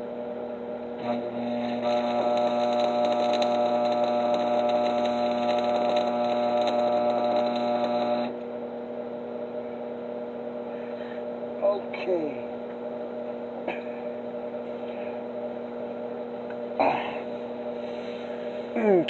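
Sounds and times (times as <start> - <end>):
steady electrical hum: 0.0 - 19.0
welding arc crackling: 1.0 - 8.4.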